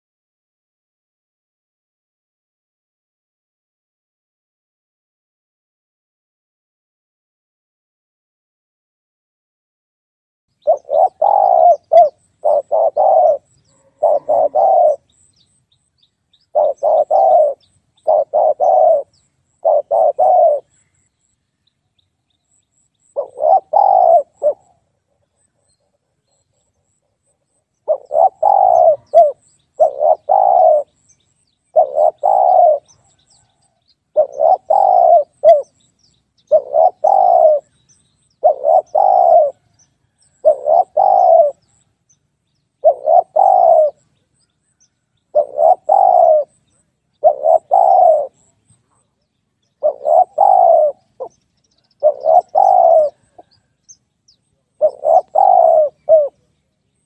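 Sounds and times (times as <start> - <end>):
dove cooing: 10.6 - 15.5, 16.4 - 20.8, 23.0 - 31.0, 31.7 - 35.8, 36.4 - 37.8, 38.4 - 41.8, 42.8 - 44.1, 45.3 - 49.0, 49.8 - 53.8, 54.6 - 56.5.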